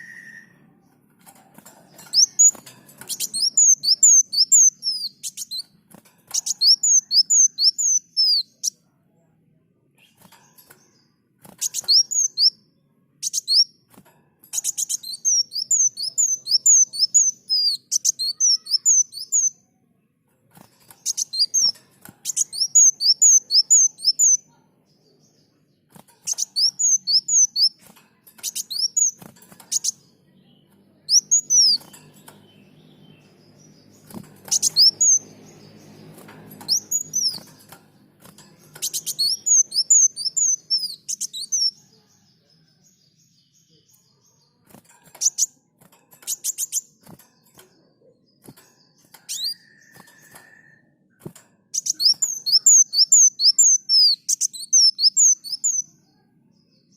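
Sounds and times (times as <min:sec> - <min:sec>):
bird singing high notes: 0:00.0 - 0:00.8.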